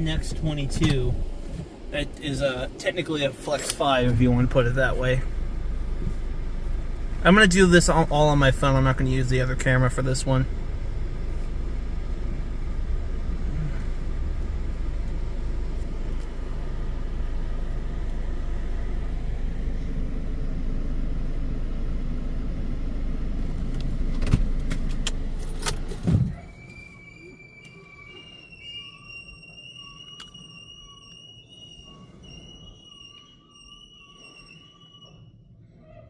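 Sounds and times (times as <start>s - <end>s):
car engine idling: 0.0s - 26.8s.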